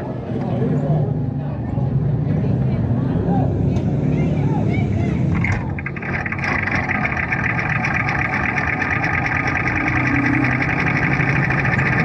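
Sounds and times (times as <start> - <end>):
small race car engines buzzing: 3.7 - 12.0.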